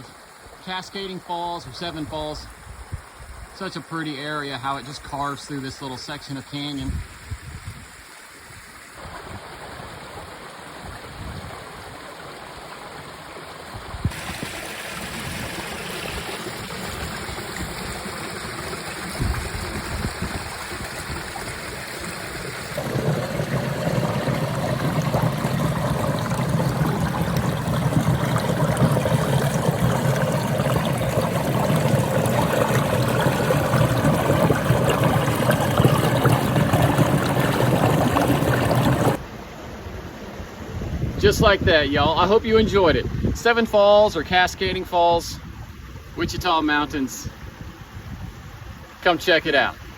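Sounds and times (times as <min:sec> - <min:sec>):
waterfall rushing over rocks: 0:22.2 - 0:39.2.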